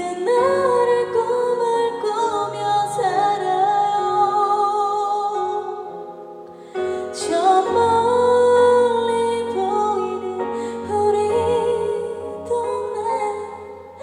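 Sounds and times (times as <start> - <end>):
woman singing: 0.0 - 14.0.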